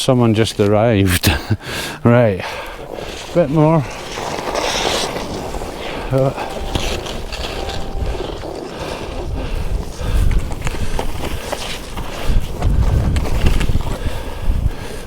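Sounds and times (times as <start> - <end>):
skis running through powder snow: 1.8 - 15.0
wind buffeting microphone: 5.3 - 15.0.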